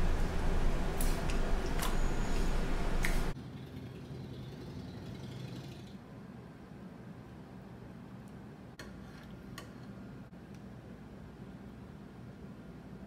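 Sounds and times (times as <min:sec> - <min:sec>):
room noise: 0:00.0 - 0:05.3.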